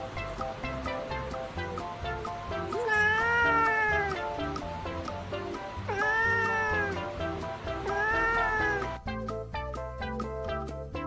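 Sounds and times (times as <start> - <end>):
background music: 0.0 - 11.0
cat meowing: 2.7 - 4.4, 5.8 - 7.2, 7.8 - 9.0.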